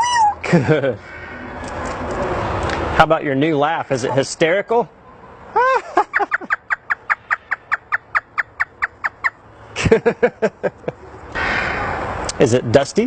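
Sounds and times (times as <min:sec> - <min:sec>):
parrot mimicking laughter: 0:00.0 - 0:00.5, 0:05.5 - 0:09.4.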